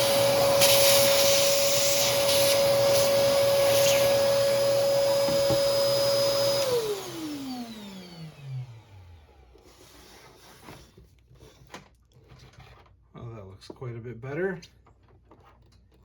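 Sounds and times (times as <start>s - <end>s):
vacuum cleaner motor whine: 0.0s - 10.0s.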